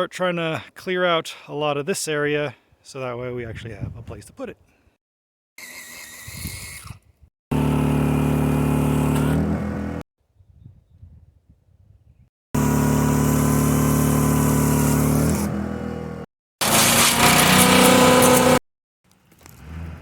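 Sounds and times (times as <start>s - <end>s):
engine running: 7.5s - 10.0s, 12.6s - 18.6s.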